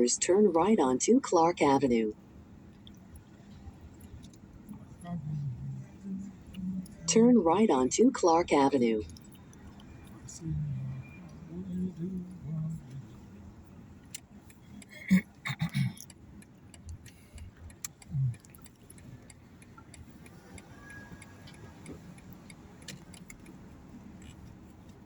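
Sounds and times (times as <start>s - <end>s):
car road hum: 0.0s - 25.0s
light ticks and clicks: 15.7s - 25.0s.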